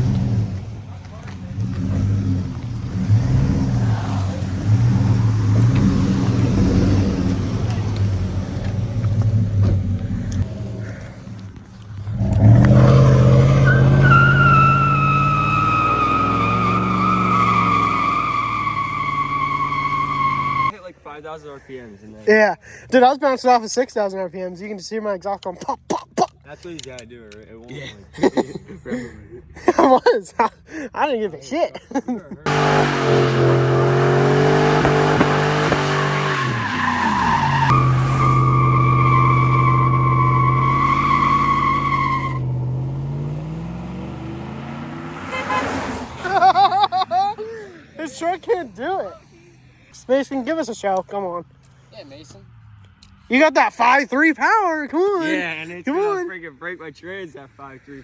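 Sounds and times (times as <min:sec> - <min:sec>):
truck engine at high revs: 0:00.0 - 0:20.7, 0:32.5 - 0:47.4
tyres squealing: 0:12.1 - 0:20.7, 0:33.4 - 0:47.4.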